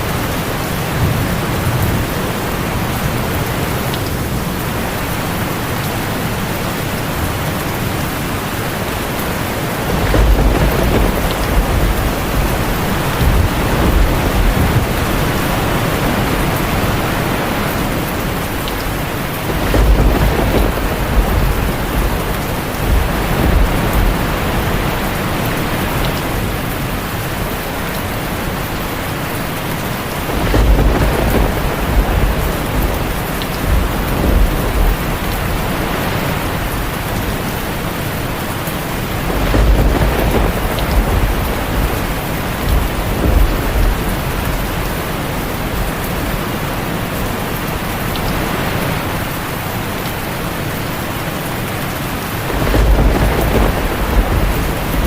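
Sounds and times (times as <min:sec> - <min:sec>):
heavy rain on a tin roof: 0:00.0 - 0:55.0
rolling thunder: 0:08.7 - 0:27.3, 0:30.0 - 0:37.8, 0:38.8 - 0:46.5, 0:52.4 - 0:55.0.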